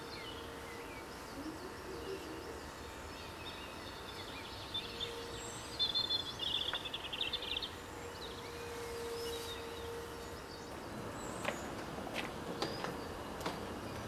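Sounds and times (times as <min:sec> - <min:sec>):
birds calling and singing: 0:00.0 - 0:14.0
faint steady hum: 0:00.0 - 0:14.0
bird trill: 0:03.2 - 0:10.7.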